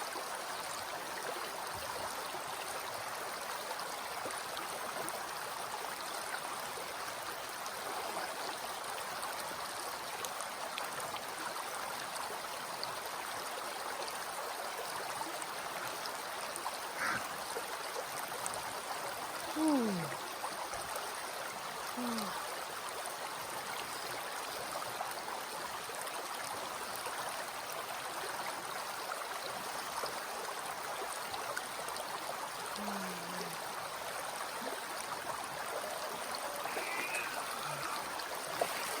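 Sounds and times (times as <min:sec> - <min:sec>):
short wordless vocal sounds: 0:19.5 - 0:20.2, 0:22.0 - 0:22.4, 0:32.8 - 0:33.6, 0:36.4 - 0:39.0
river rushing: 0:33.4 - 0:39.0.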